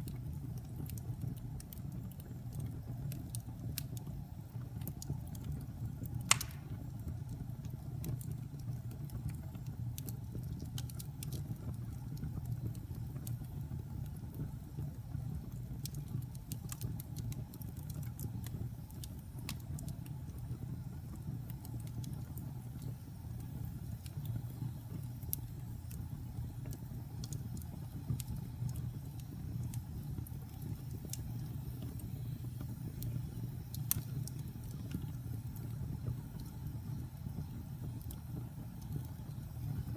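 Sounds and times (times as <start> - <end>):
fire crackling and popping: 0.0 - 39.9
wood fire burning: 0.0 - 39.9.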